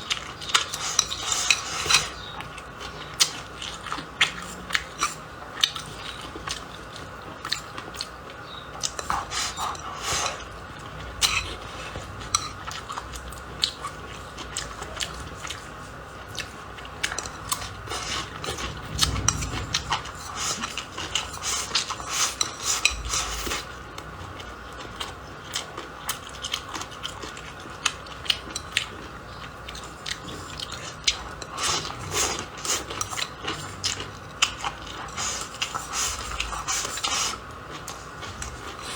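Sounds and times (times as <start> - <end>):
utensils clinking on dishes: 0.1 - 5.2.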